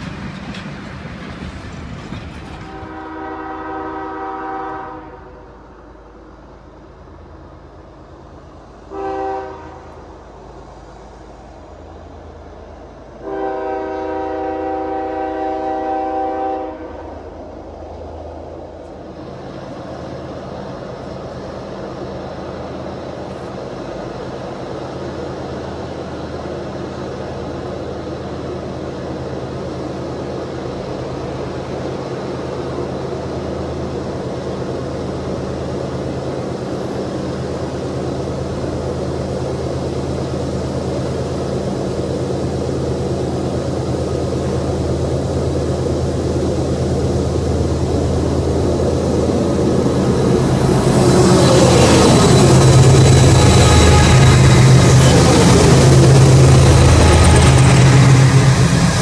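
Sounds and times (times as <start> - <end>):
train engine rumble: 0.0 - 59.0
locomotive air horn: 2.7 - 5.5, 8.9 - 10.0, 13.2 - 17.1, 52.8 - 59.0.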